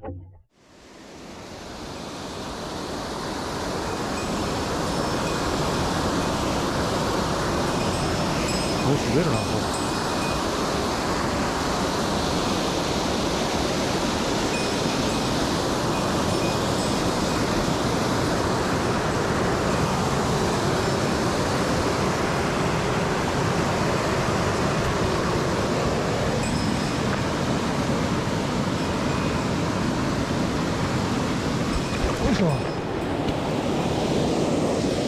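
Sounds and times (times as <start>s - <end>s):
water rushing over rocks: 2.3s - 34.8s.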